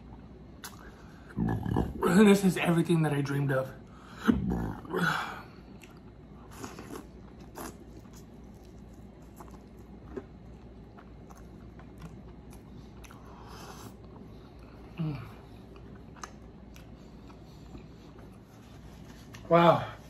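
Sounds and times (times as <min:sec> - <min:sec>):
crunchy chewing of fried food: 0:05.5 - 0:20.0.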